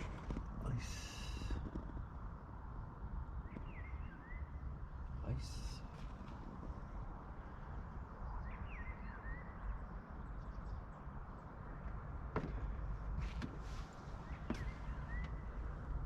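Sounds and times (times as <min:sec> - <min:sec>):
bird chirps: 0:08.3 - 0:11.0, 0:14.0 - 0:15.8.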